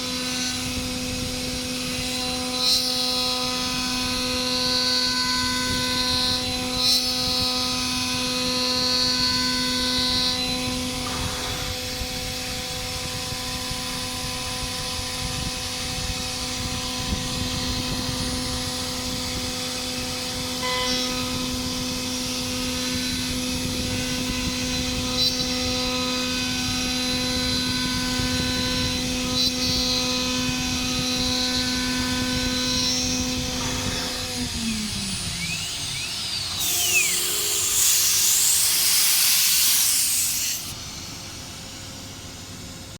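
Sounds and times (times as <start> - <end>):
router spindle high whine: 0.0 - 42.9
cutting bed noise: 32.0 - 40.8.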